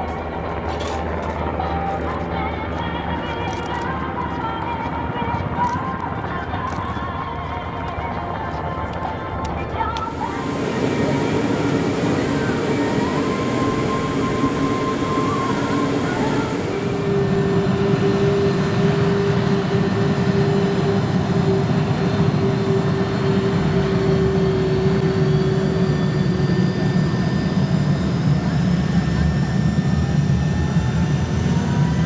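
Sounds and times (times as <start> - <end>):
aircraft engines droning: 0.0 - 32.0
steady hum: 10.0 - 26.8
faint high whine: 10.0 - 32.0.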